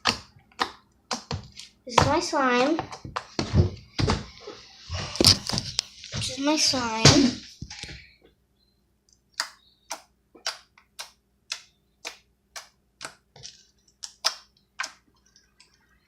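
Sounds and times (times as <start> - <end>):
slime clicking and popping: 14.0 - 15.0.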